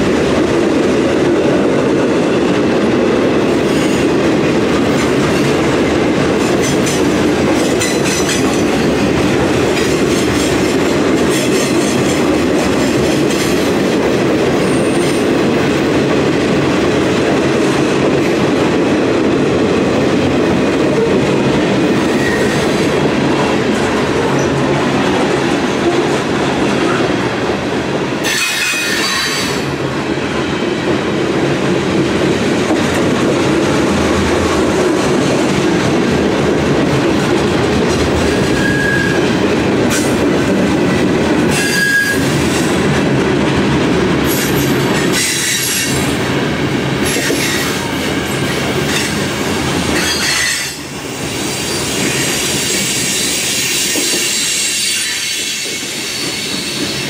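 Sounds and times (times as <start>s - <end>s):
freight train wheels rumbling: 0.0s - 57.0s
high wheel squeals: 38.5s - 39.3s.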